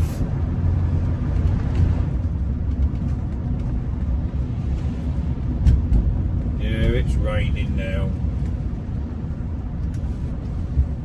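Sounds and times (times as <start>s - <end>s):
car engine rumble: 0.0s - 11.0s
road noise inside car: 0.0s - 11.0s.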